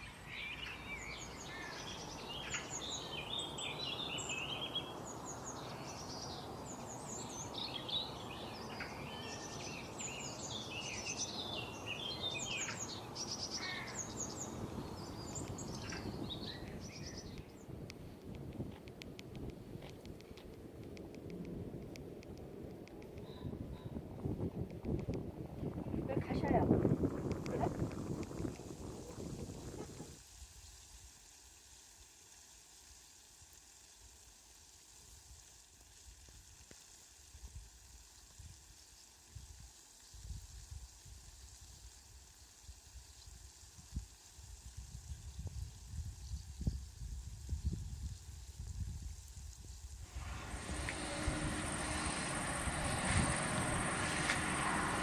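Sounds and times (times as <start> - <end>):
faint steady hiss: 0.0 - 55.0
outdoor background noise: 0.0 - 55.0
wind buffeting microphone: 14.3 - 30.2, 44.7 - 55.0.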